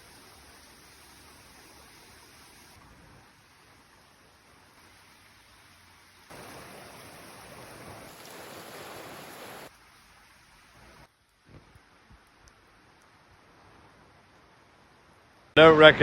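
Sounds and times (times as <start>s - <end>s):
steady rushing outdoor noise: 2.2s - 16.0s.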